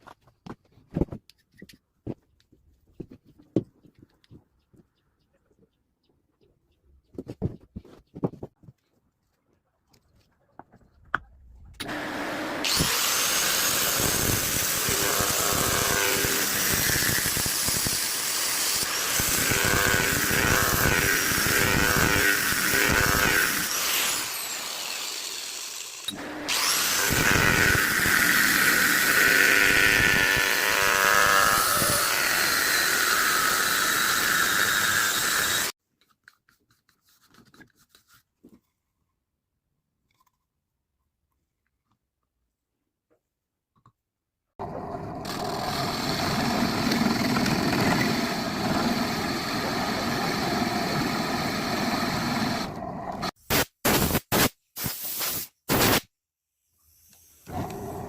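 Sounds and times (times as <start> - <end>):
electric power tool whining: 11.8 - 35.8, 45.0 - 53.4.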